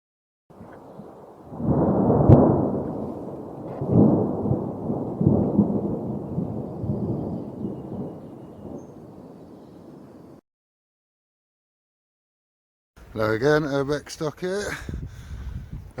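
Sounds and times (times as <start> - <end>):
sharp crack: 1.6 - 4.4.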